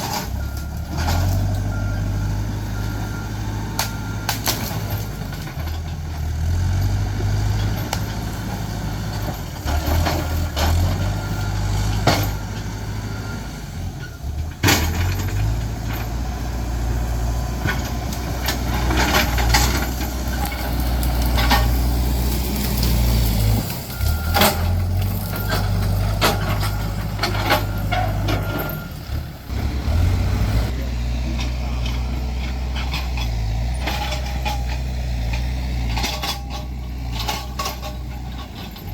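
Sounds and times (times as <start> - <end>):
diesel engine drone: 0.0 - 38.9
sharp metal clanks and knocks: 11.9 - 12.6, 14.5 - 16.2, 17.6 - 21.9, 23.6 - 29.0, 31.3 - 38.9.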